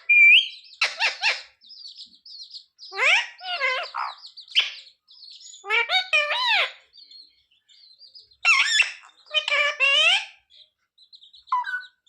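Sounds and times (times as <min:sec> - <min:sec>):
parrot squawks and whistles: 0:00.0 - 0:01.6.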